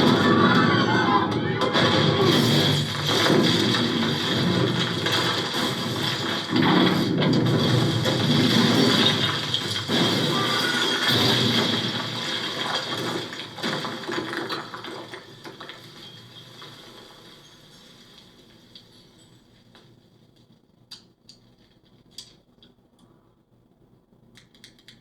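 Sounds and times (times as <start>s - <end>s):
action film soundtrack from tv speakers: 0.0s - 13.5s.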